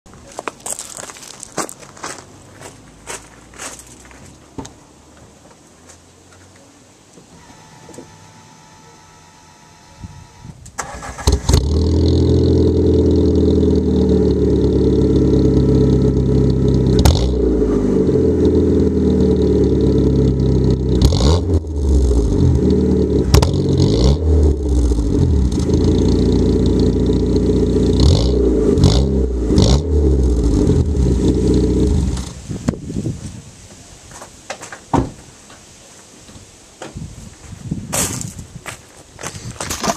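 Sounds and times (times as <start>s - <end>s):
car engine cranking: 10.6s - 17.5s
car engine idling and revving: 10.8s - 32.4s.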